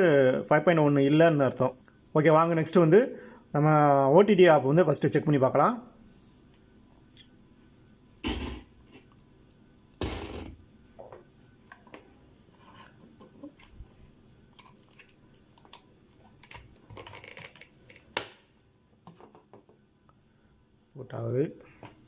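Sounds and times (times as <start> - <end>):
small clicks and rustles: 13.2 - 18.1.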